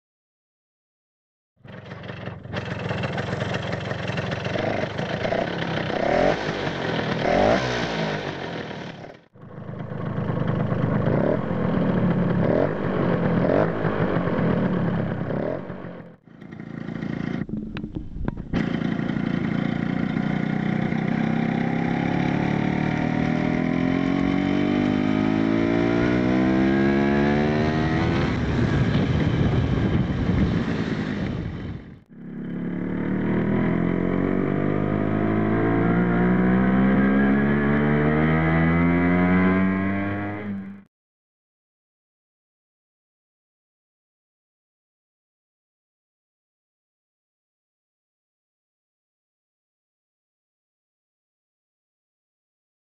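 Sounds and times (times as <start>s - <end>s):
scooter engine revving: 1.6s - 40.9s.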